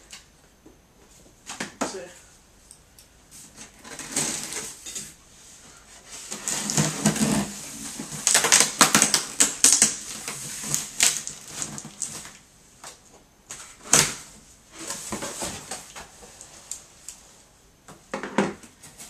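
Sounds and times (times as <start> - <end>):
cardboard rustling and scraping: 5.9 - 8.6
packaging crackling and clicking: 8.2 - 12.4.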